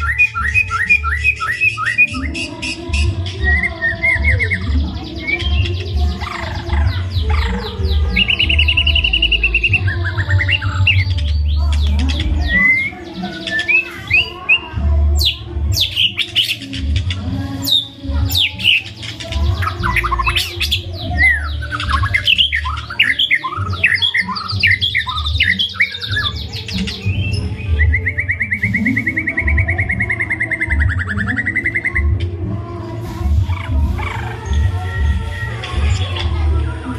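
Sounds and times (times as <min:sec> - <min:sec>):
songbird singing trills and whistles: 0:00.0 - 0:32.6, 0:33.2 - 0:36.9.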